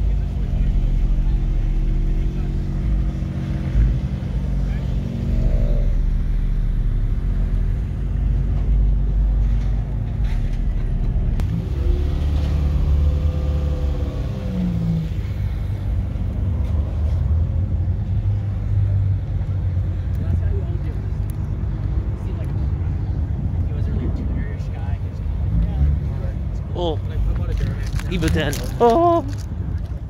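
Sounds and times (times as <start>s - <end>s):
car engines rumbling: 0.0s - 30.0s
engine revving: 0.4s - 18.7s.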